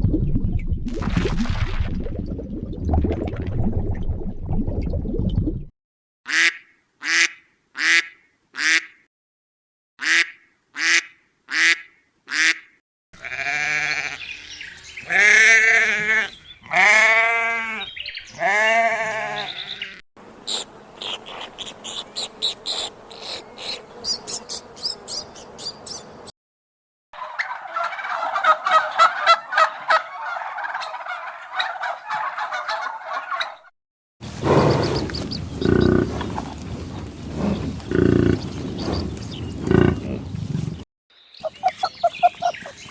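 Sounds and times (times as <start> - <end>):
duck quacks: 6.3 - 9.0, 10.0 - 12.7, 39.6 - 40.2
sheep bleats: 13.2 - 20.0, 39.7 - 40.2
turkey gobbling: 27.2 - 33.7, 34.3 - 40.3
buffalo grunts: 34.3 - 40.8.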